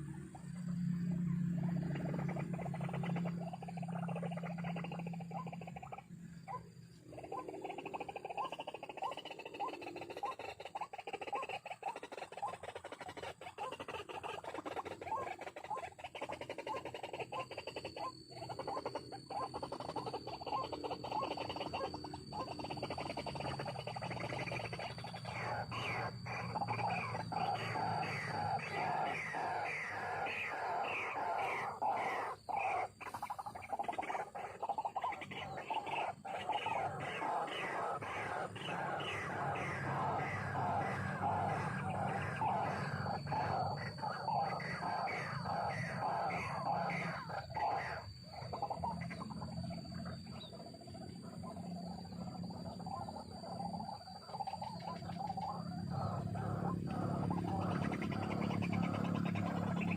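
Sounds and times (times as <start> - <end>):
steady low hum: 0.0 - 59.9
bird calling repeated notes: 15.0 - 50.6.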